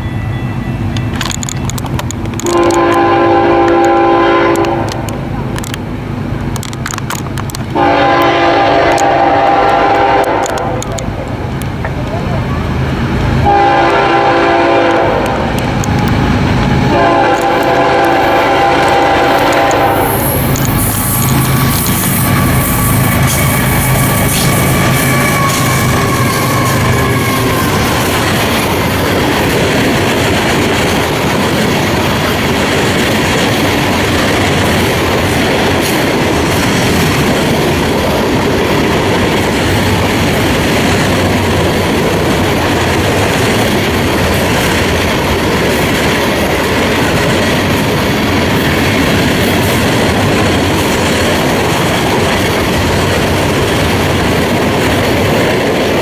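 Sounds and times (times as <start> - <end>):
freight cars rumbling and clacking: 0.0 - 56.0
train horn: 2.4 - 5.2, 7.7 - 11.0, 13.4 - 16.1, 16.7 - 29.0.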